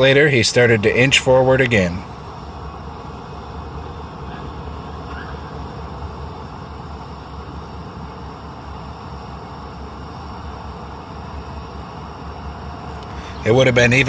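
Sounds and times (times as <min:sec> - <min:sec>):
diesel locomotive running: 0:00.0 - 0:14.0.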